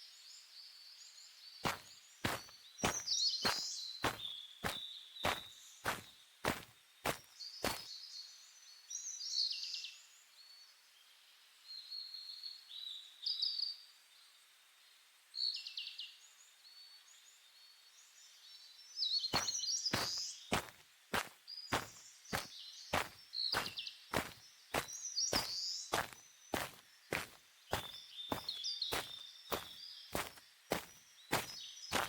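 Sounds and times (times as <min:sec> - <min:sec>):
footsteps walking: 0:01.6 - 0:07.8, 0:19.4 - 0:32.0
birds chirping: 0:01.6 - 0:08.2, 0:19.0 - 0:32.0.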